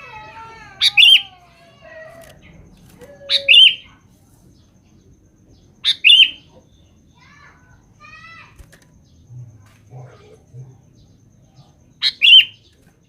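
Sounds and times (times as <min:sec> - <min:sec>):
bulbul calling: 0:00.8 - 0:01.4, 0:02.3 - 0:04.0, 0:05.6 - 0:07.0, 0:09.9 - 0:12.8.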